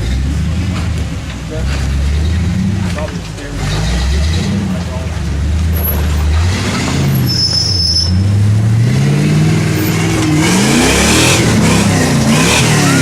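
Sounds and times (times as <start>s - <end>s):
engine revving hard: 1.7s - 13.0s.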